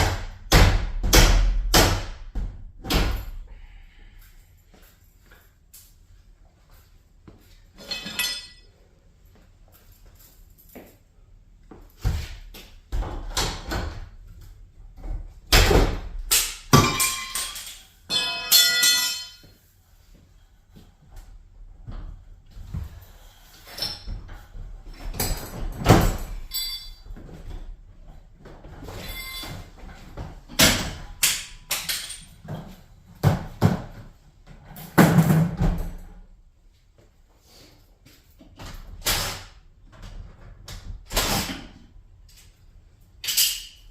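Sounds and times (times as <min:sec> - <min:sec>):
garage door parts knocking: 0:00.0 - 0:03.2, 0:34.8 - 0:36.1
metal ringing: 0:07.8 - 0:08.6, 0:16.8 - 0:19.5, 0:26.4 - 0:27.1
metal parts clanking and scraping: 0:07.8 - 0:08.7, 0:16.8 - 0:19.5, 0:23.4 - 0:24.4, 0:25.1 - 0:27.1, 0:28.8 - 0:29.8, 0:31.1 - 0:32.8, 0:43.2 - 0:43.9.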